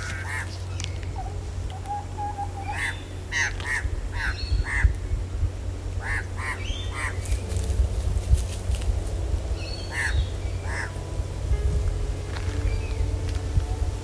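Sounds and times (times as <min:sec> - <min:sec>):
bird calling harsh notes: 0:00.0 - 0:05.0, 0:06.0 - 0:07.7, 0:09.6 - 0:11.1
walking and handling noise: 0:07.2 - 0:09.4, 0:11.6 - 0:14.0.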